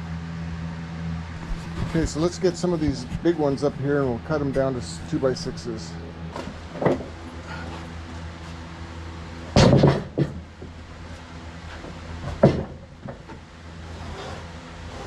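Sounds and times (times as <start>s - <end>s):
low engine hum: 0.0s - 15.0s
heavy timbers knocking: 9.5s - 10.8s, 12.2s - 13.4s.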